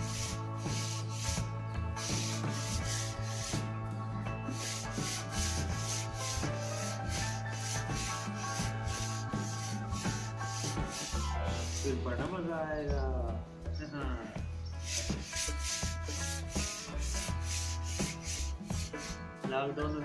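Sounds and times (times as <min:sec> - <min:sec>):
sandpaper rubbing on wood: 0:00.0 - 0:03.7, 0:04.5 - 0:12.1, 0:14.8 - 0:19.2.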